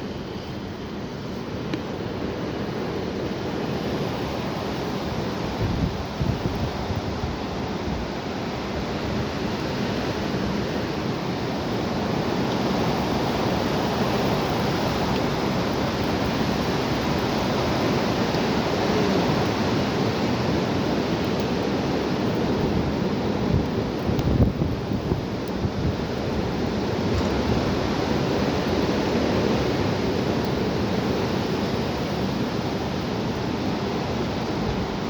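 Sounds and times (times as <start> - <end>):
wind buffeting microphone: 5.2 - 8.2, 22.3 - 30.1
strong wind rushing: 5.5 - 8.1.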